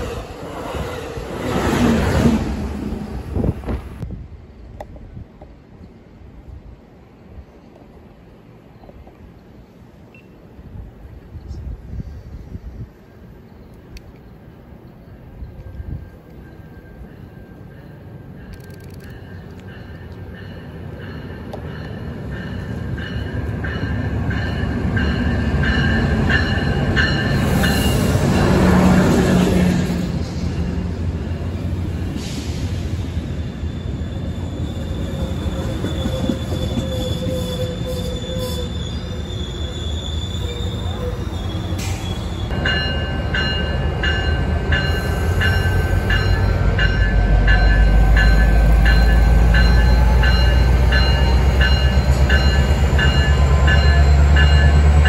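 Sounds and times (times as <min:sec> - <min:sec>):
rush of train noise: 0:00.0 - 0:55.0
train wheels squealing: 0:30.2 - 0:55.0.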